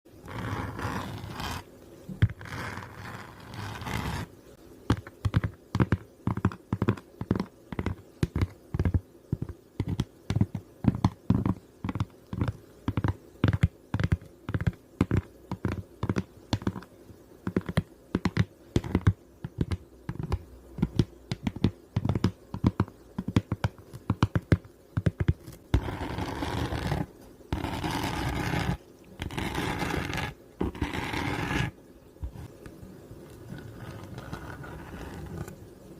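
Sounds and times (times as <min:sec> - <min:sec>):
scratching strokes: 0:00.2 - 0:04.3, 0:25.7 - 0:32.6, 0:33.3 - 0:35.6.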